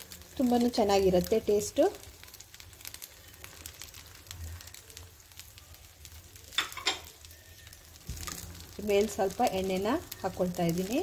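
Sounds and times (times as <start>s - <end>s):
batter sizzling in a pan: 0.0s - 11.0s
small crackles: 0.0s - 11.0s.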